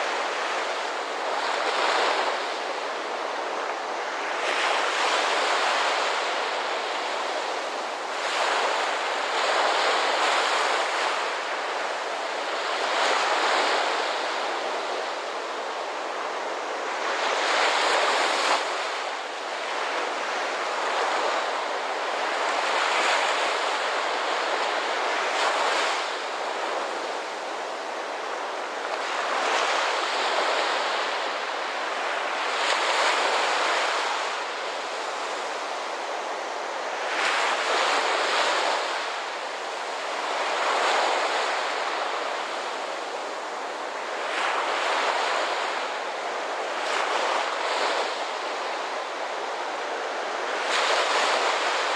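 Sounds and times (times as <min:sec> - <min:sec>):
ocean waves breaking on shore: 0:00.0 - 0:51.9.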